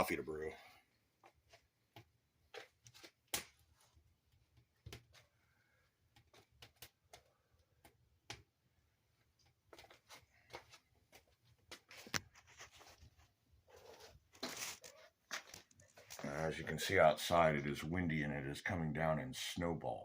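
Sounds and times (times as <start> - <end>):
wood fire crackling: 14.5 - 17.3.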